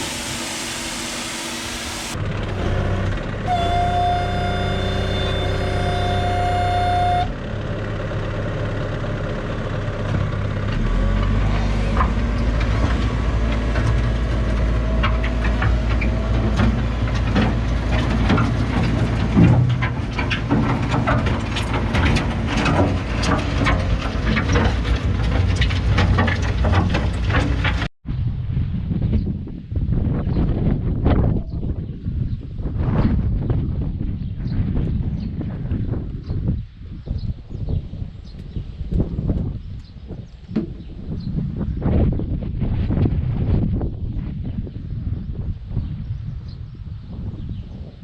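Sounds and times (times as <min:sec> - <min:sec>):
tractor engine rumbling: 0:00.0 - 0:27.9
knocks and rattles: 0:11.9 - 0:27.9.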